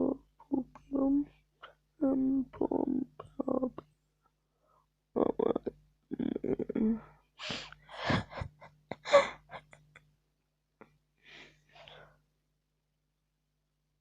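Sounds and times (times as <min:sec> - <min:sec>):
person gasping breathily: 0:09.0 - 0:09.6.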